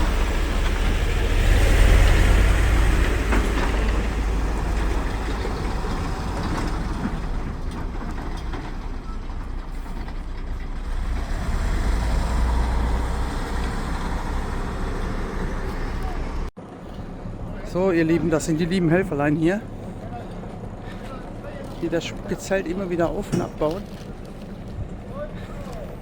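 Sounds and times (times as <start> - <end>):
truck diesel engine driving past: 0.0 - 22.0.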